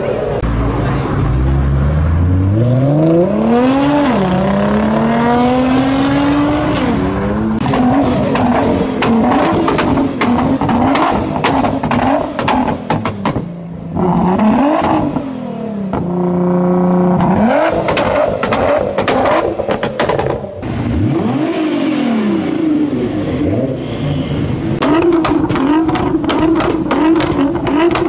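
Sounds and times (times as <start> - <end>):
car engine revving: 0.0 - 28.0
exhaust crackling pops and bangs: 7.6 - 13.5, 17.2 - 20.4, 24.8 - 28.0.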